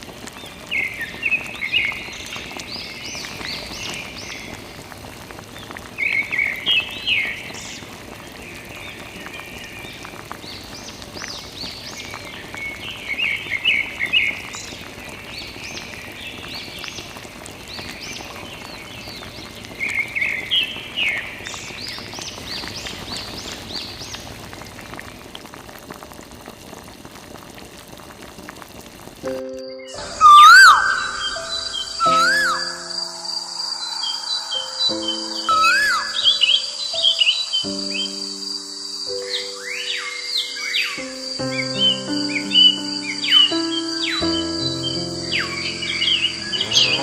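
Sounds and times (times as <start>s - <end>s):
rain-like hiss: 0.0s - 47.0s
high repeated chirping calls: 29.5s - 47.0s.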